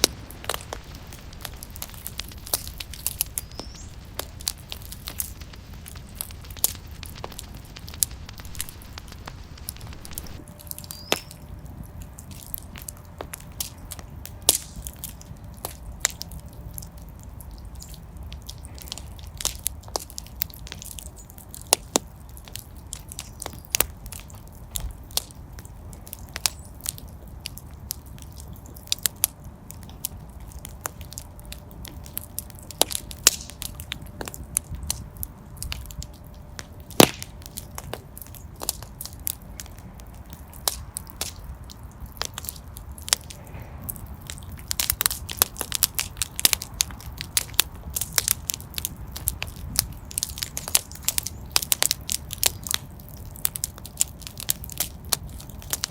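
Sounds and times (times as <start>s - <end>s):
low steady rumble: 0.0s - 21.3s
fire crackling and popping: 0.0s - 55.9s.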